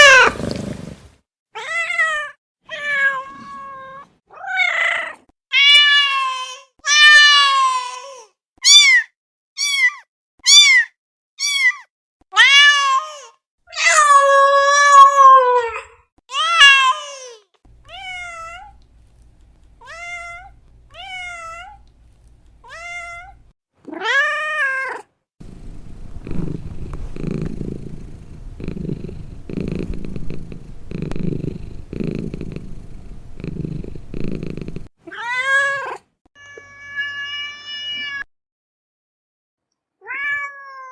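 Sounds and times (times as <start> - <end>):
cat purring: 0.3 - 1.0, 25.4 - 34.9
low hum: 25.4 - 34.9.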